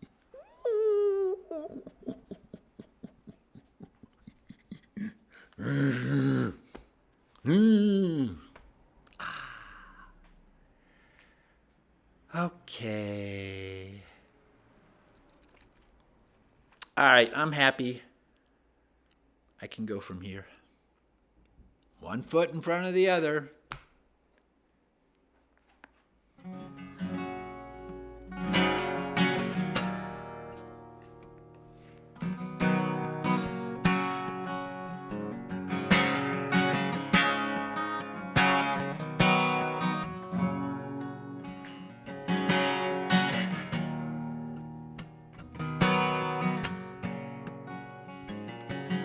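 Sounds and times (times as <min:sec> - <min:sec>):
person holding high vocal note: 0:00.3 - 0:02.2
soft vocal clicks: 0:18.3 - 0:19.6
acoustic guitar strumming: 0:26.4 - 0:49.0.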